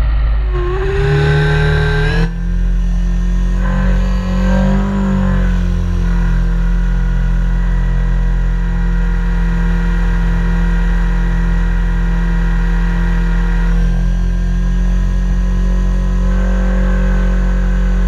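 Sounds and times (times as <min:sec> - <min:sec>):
helicopter drone: 0:00.0 - 0:18.0.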